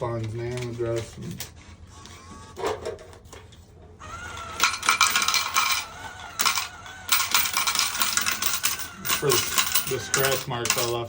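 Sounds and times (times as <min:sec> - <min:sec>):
coins clattering: 0:04.6 - 0:11.0.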